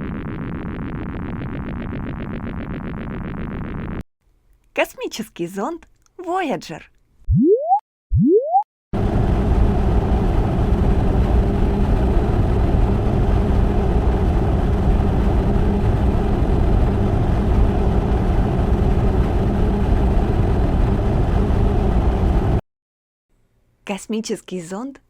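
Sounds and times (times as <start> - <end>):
spacecraft engine rumble effect: 9.0 - 22.6.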